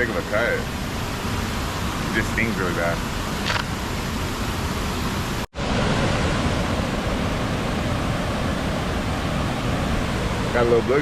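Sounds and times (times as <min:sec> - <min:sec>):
water rushing through spillway: 0:00.0 - 0:11.0.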